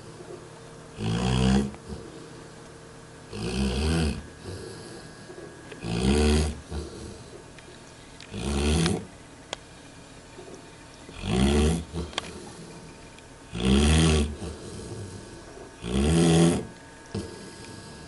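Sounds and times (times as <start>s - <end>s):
dog snoring: 0.9s - 2.3s, 3.3s - 7.4s, 8.3s - 9.1s, 11.1s - 12.9s, 13.5s - 18.0s.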